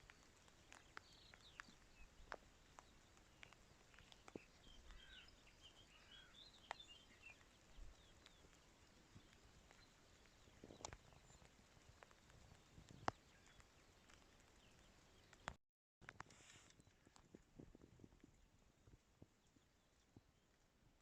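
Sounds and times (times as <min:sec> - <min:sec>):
distant birds chirping: 0:00.0 - 0:15.6.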